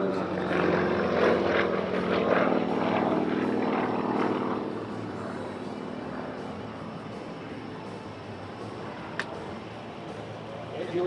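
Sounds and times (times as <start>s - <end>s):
propeller plane engine: 0.0s - 11.0s.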